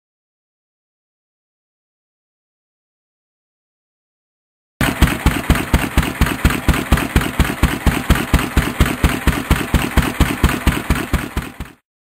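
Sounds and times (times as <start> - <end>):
stationary engine running: 4.8 - 11.8.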